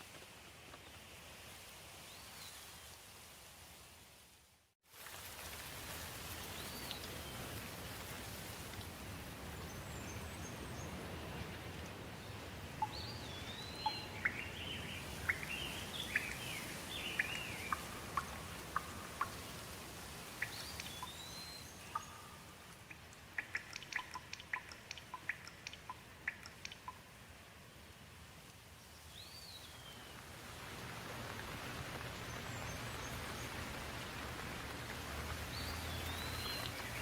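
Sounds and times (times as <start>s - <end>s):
steady rain: 0.0s - 37.0s
water drips: 5.0s - 9.6s, 12.7s - 27.4s, 28.4s - 37.0s.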